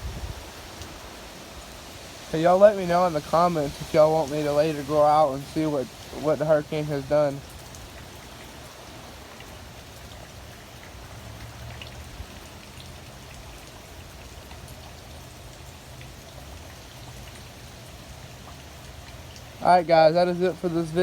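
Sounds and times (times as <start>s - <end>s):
heavy rain hissing: 0.0s - 14.0s, 19.5s - 21.0s
raindrops ticking: 0.0s - 21.0s.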